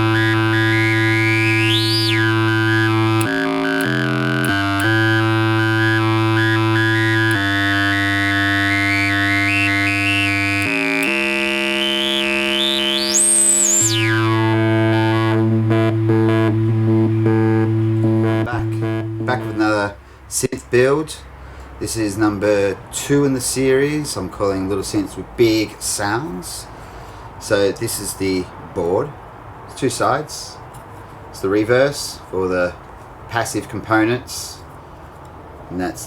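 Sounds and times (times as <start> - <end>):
buzzy synth drone: 0.0 - 19.9.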